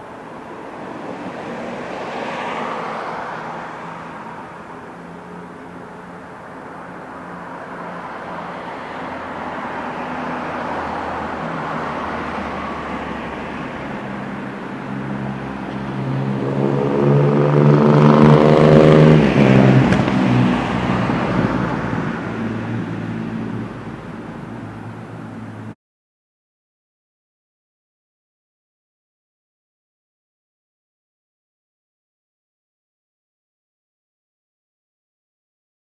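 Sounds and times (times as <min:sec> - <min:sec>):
motor vehicle passing: 0:00.0 - 0:25.8.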